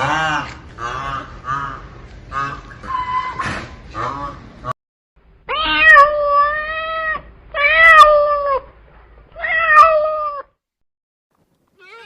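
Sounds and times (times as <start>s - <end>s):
cat meowing: 5.5s - 8.7s, 9.4s - 10.5s, 11.8s - 12.0s.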